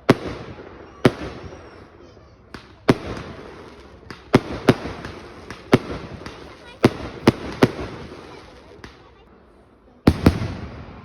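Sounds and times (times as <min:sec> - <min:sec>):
lighter firework pops: 0:02.5 - 0:09.2.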